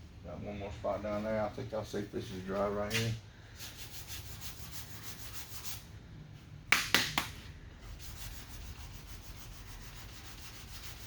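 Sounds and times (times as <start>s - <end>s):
sanding block strokes: 3.6s - 5.8s, 7.9s - 11.0s.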